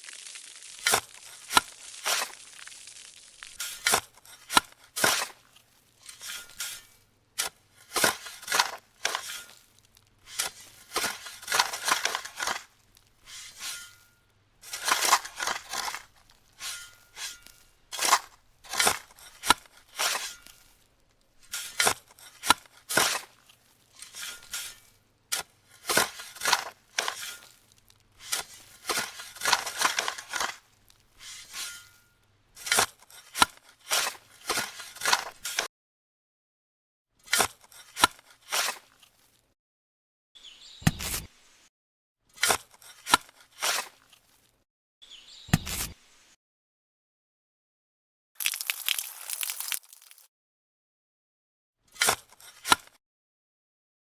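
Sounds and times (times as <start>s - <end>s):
scraping and cutting strokes: 0.6s - 2.8s, 3.4s - 35.7s, 37.2s - 39.4s, 42.4s - 44.5s, 51.9s - 53.0s.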